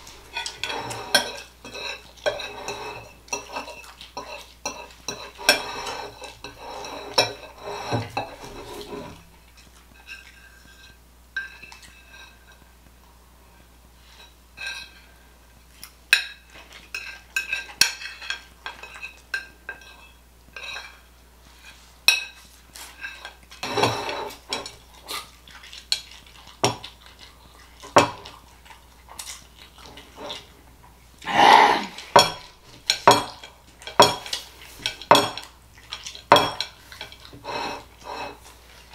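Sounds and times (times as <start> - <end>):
cutlery clinking on a plate: 0.3 - 9.2, 10.0 - 12.6, 16.1 - 21.1, 22.1 - 24.8, 32.1 - 38.4.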